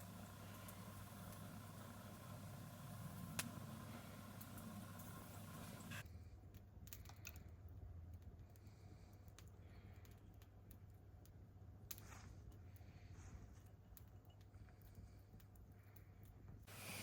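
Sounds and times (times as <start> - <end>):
hiss: 0.0 - 6.0, 16.7 - 17.0.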